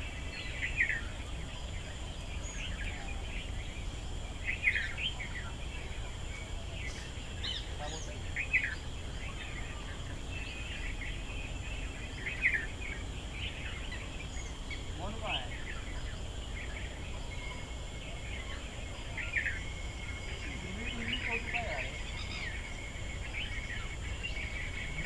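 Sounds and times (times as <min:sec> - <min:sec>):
birds chirping: 0:00.0 - 0:25.0
low background rumble: 0:00.0 - 0:25.0
high-pitched drone: 0:17.3 - 0:25.0.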